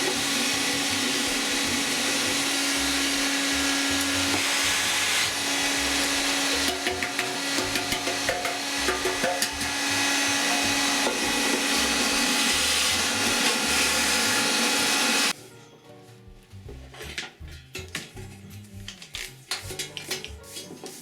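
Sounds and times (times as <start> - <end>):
small electric tool running: 0.0 - 15.3.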